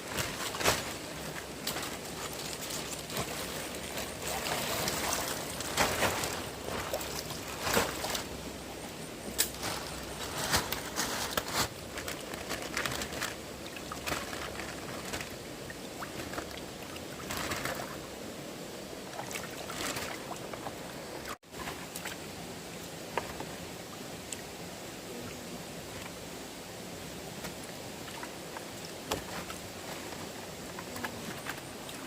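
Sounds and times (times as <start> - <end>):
stream water running: 0.0 - 32.0
splashes and knocks in water: 0.1 - 8.3.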